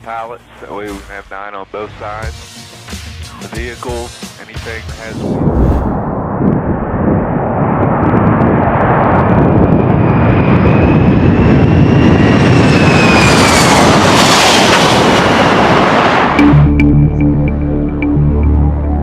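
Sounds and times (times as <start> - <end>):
jet engines rushing: 5.3 - 7.7
high jet engine whine: 5.4 - 7.8.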